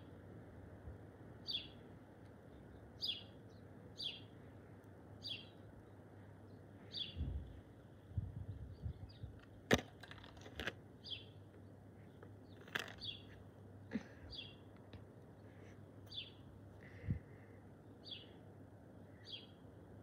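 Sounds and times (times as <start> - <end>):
bird chirping: 1.4 - 1.8, 2.6 - 4.3, 5.2 - 7.3, 11.0 - 13.4, 15.3 - 16.5.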